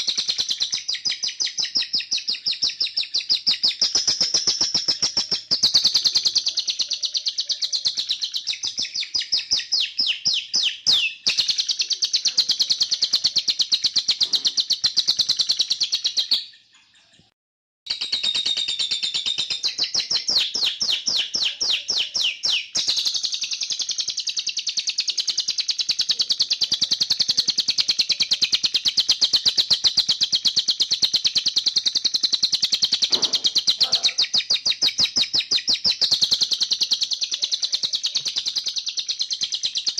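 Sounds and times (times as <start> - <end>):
bird singing trills: 0.0 - 17.3, 17.9 - 39.9.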